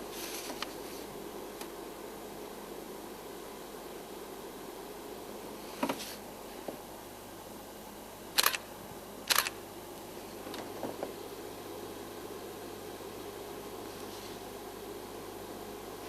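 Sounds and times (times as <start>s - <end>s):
low background hum: 0.0s - 16.0s
camera shutter clicking: 8.4s - 8.6s, 9.3s - 9.6s.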